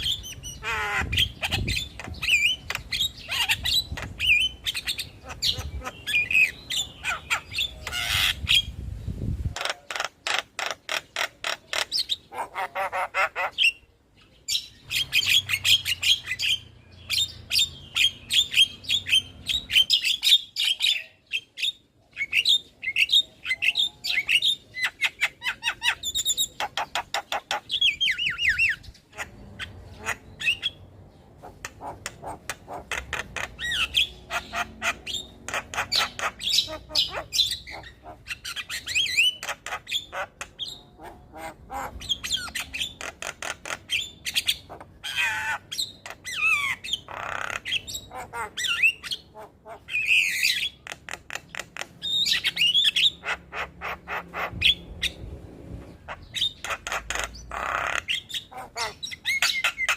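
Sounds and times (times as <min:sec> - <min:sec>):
bird singing with harsh squawks: 0:00.0 - 0:55.3, 0:55.9 - 0:59.9.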